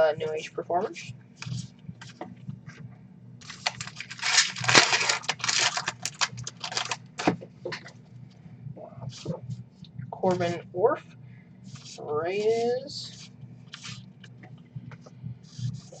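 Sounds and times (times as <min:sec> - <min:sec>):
packaging crinkling and rustling: 0:03.4 - 0:07.9.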